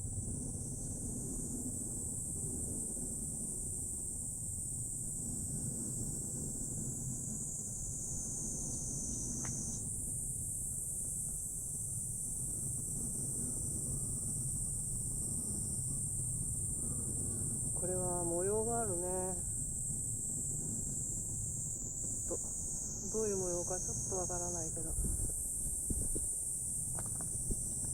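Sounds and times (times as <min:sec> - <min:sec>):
steady low rumble: 0:12.1 - 0:27.9
insects shrilling: 0:15.8 - 0:27.9.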